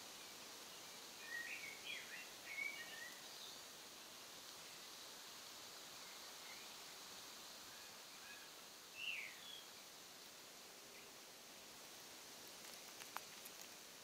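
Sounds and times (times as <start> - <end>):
quiet outdoor hiss: 0.0 - 14.0
faint bird chirps: 1.2 - 3.6, 7.7 - 9.8.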